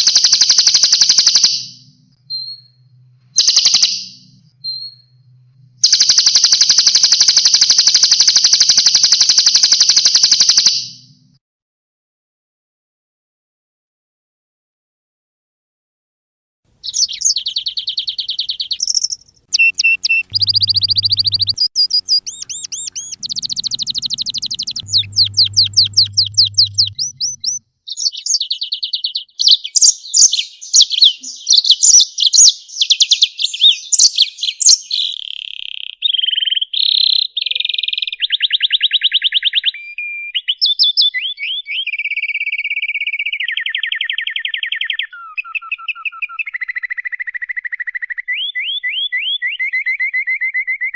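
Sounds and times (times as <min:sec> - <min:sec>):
songbird singing trills: 0:00.0 - 0:11.0, 0:16.8 - 0:49.8
faint low hum: 0:01.7 - 0:06.1, 0:16.7 - 0:27.6.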